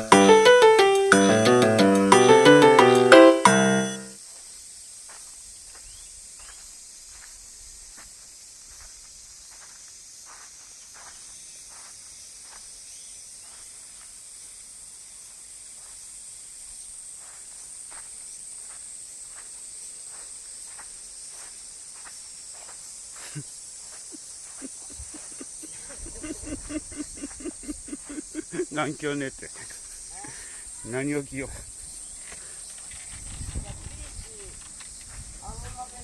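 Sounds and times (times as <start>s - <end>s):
high-pitched insect chorus: 4.2s - 36.0s.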